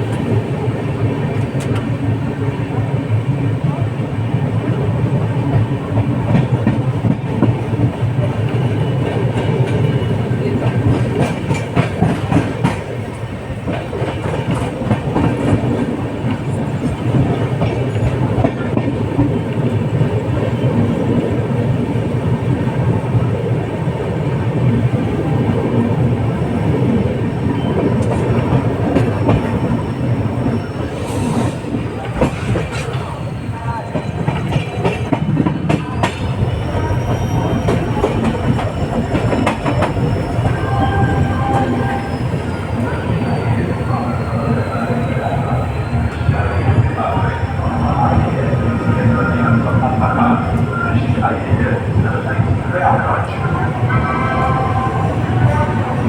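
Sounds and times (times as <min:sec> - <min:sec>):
loud train rumble: 0:00.0 - 0:56.0.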